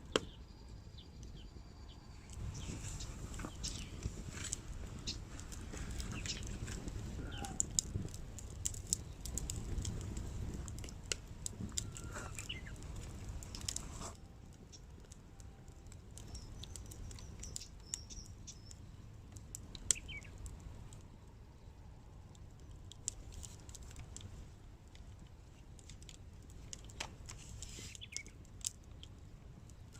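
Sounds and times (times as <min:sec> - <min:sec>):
wood fire crackling and popping: 0:00.0 - 0:00.4, 0:02.1 - 0:29.9
small birds chirping: 0:00.1 - 0:09.9, 0:11.7 - 0:13.1, 0:16.2 - 0:19.1, 0:19.8 - 0:20.5, 0:27.7 - 0:28.5.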